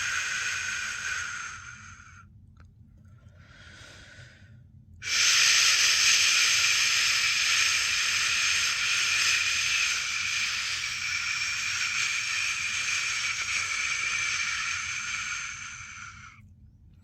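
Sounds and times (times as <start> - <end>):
person shushing: 5.0 - 16.4.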